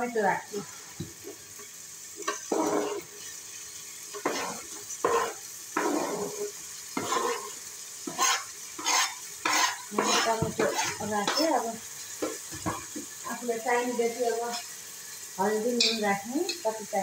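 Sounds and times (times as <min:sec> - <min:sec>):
onions sizzling in oil: 0:00.0 - 0:17.0
tomatoes dropping into hot oil: 0:01.0 - 0:17.0
knife scraping cutting board: 0:04.2 - 0:06.4, 0:07.0 - 0:11.4.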